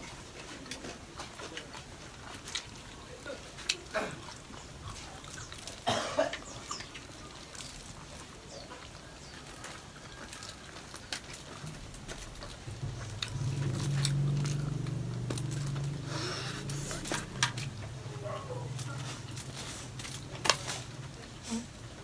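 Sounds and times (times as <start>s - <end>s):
chewing: 0.0s - 22.0s
low multi-tone hum: 12.2s - 22.0s.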